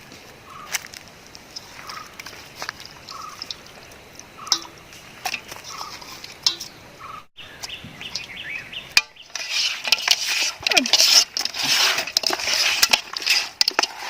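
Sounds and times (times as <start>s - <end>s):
hands rubbing food in a bowl: 9.2s - 14.0s.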